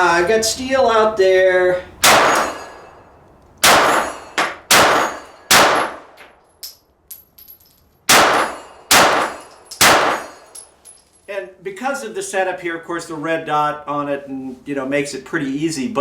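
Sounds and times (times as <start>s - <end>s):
pistol shots: 2.0s - 2.8s, 3.6s - 6.2s, 8.1s - 10.4s
steel targets ringing: 2.0s - 6.0s, 7.1s - 11.0s.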